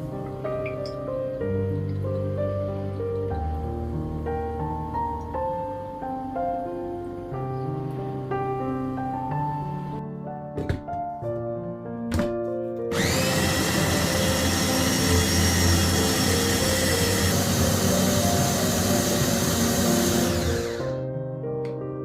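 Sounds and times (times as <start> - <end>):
soft piano music: 0.0 - 22.0
blender motor whining: 12.9 - 21.0.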